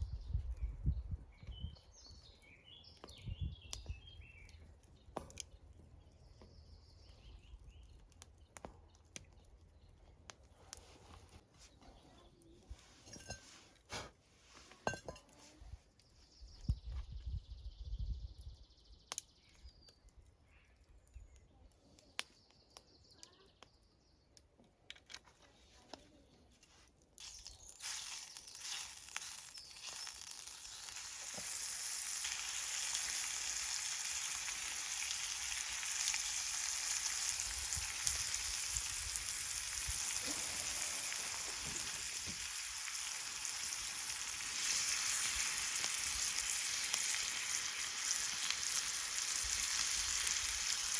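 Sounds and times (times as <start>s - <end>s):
small clicks and knocks: 24.6s - 26.0s
food sizzling in a pan: 27.2s - 50.9s.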